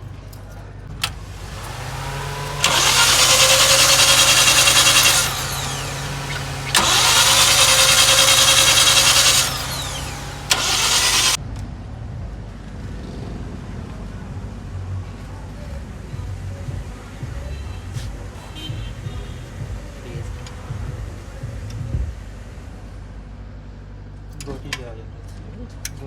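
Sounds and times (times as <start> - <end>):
engine cranking on starter: 1.0 - 11.4.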